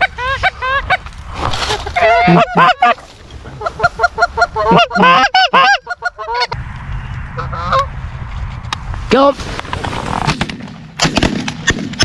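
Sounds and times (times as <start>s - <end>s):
geese honking: 1.7s - 6.6s, 7.4s - 7.9s.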